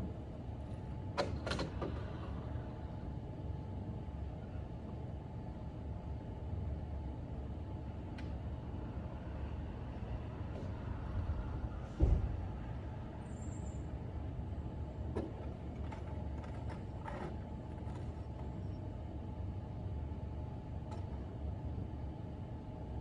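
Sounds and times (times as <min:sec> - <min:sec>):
low rumble of road traffic: 0:00.0 - 0:23.0
heavy thump: 0:11.9 - 0:12.6.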